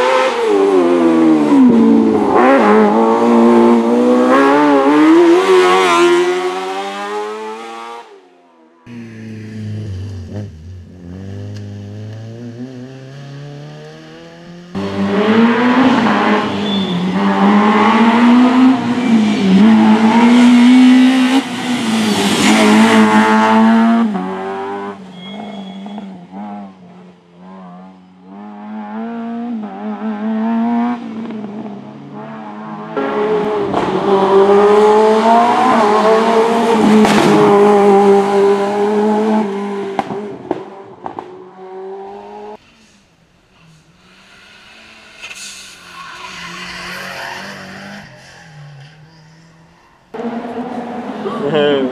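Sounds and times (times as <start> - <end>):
race car engines revving: 0.0 - 51.9
tyre squeal: 16.5 - 17.2, 25.0 - 26.2, 44.9 - 50.1.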